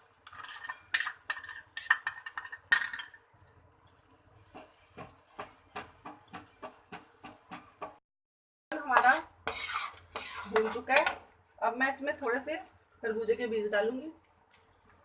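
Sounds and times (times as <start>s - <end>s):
metal spoon scraping in a pan: 0.0s - 3.2s, 8.8s - 11.2s.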